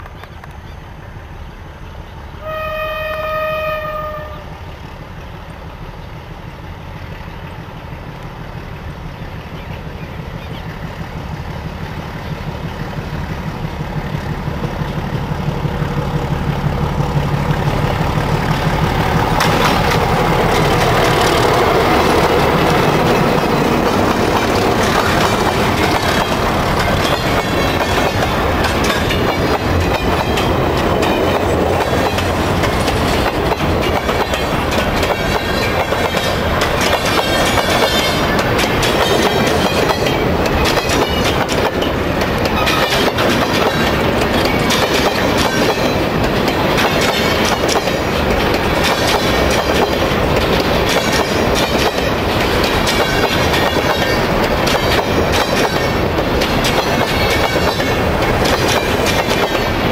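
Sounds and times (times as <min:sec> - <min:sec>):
locomotive engines rumbling: 0:00.0 - 0:59.9
train horn blast: 0:02.4 - 0:04.7
train wheels clattering on rails: 0:02.5 - 0:59.9.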